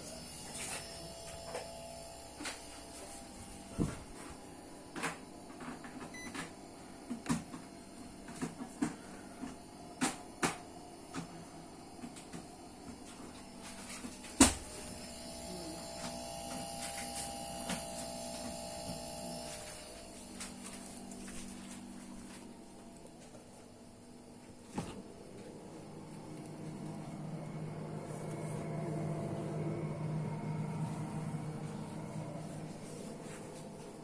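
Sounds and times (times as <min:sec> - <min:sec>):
steady hum: 0:07.9 - 0:34.0.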